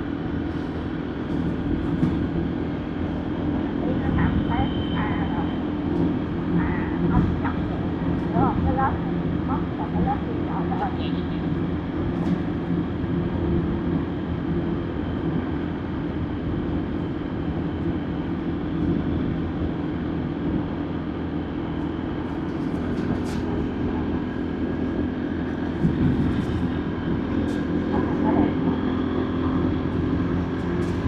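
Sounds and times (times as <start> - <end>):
wind and road noise: 0.0 - 4.6, 5.5 - 31.0.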